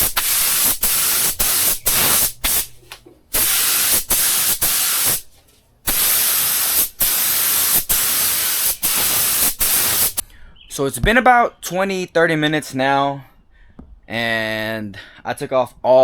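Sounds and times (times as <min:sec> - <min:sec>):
paint spray gun hissing: 0:00.0 - 0:05.3, 0:05.9 - 0:10.2.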